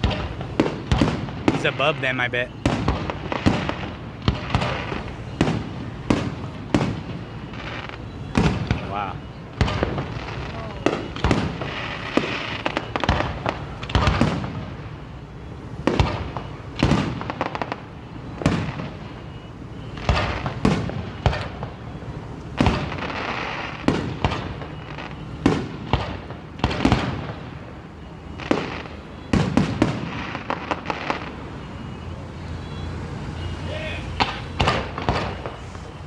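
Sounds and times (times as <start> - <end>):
firework shells bursting: 0.0 - 14.8
rapid firework crackle: 0.0 - 32.0, 32.9 - 36.0.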